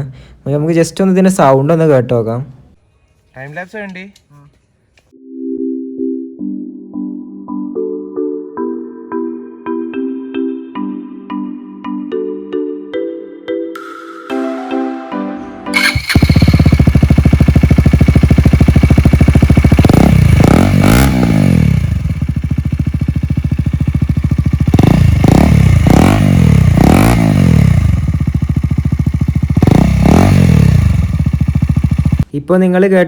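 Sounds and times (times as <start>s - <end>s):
motorcycle engine blipping: 15.8s - 20.4s, 21.8s - 32.2s.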